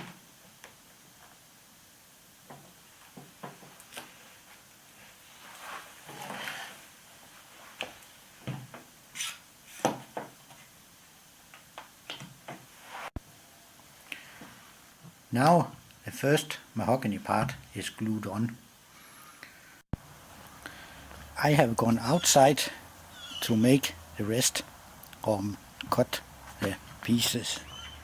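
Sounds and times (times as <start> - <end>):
scraping rustle: 4.0 - 6.9.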